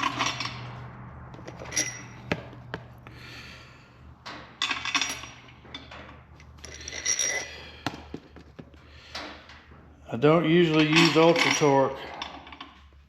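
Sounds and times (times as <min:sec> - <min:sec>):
metal bolts clinking: 0:00.0 - 0:02.5, 0:04.2 - 0:08.0, 0:10.6 - 0:12.8.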